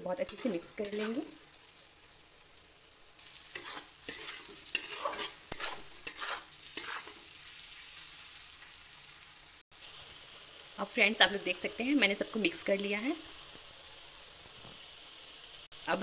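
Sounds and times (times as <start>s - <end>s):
potatoes sizzling in oil: 0.0s - 16.0s
spatula scraping a pan: 0.2s - 1.5s, 3.2s - 7.4s.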